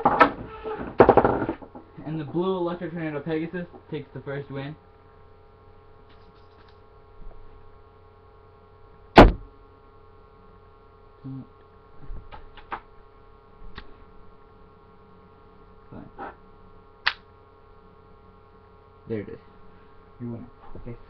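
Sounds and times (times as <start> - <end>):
steady electrical hum: 0.0 - 21.0
sharp knock: 9.2 - 9.5.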